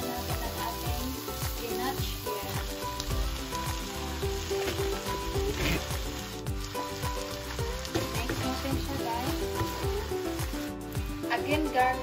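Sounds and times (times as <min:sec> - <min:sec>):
music with a steady beat: 0:00.0 - 0:12.0
spinach sizzling in a wok: 0:00.0 - 0:12.0.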